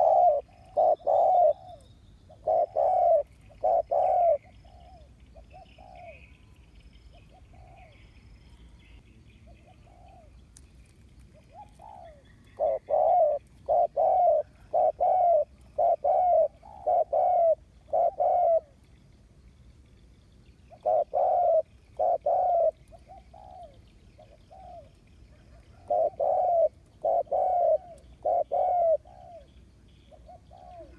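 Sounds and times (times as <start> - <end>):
dove cooing: 0.0 - 6.4, 7.1 - 8.8, 9.5 - 10.4, 11.3 - 18.8, 20.7 - 30.9.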